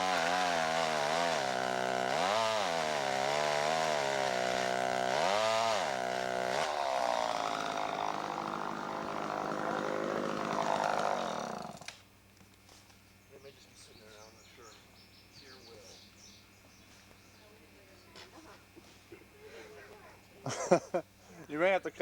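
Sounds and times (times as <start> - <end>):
chainsaw cutting wood: 0.0 - 12.0.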